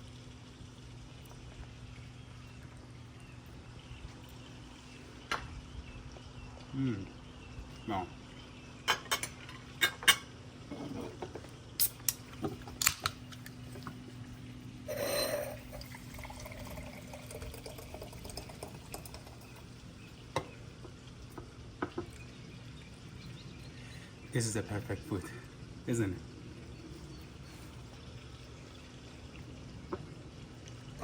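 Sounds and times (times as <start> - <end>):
low steady hum: 0.0 - 31.0
cutlery clinking on a plate: 14.9 - 15.7.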